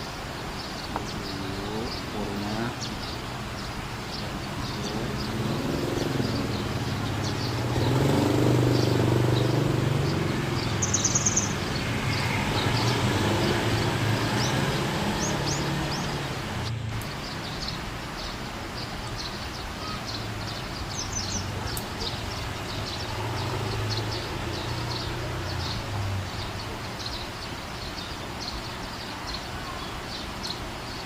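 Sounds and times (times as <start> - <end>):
small bird chirping: 0.6 - 16.3, 17.0 - 31.0
motor vehicle rumbling past: 1.5 - 17.9, 20.4 - 27.2.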